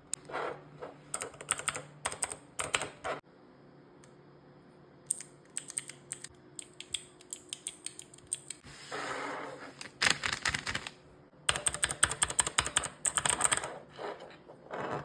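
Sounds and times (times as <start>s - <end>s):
fidget toy keys clicking: 5.1s - 8.6s.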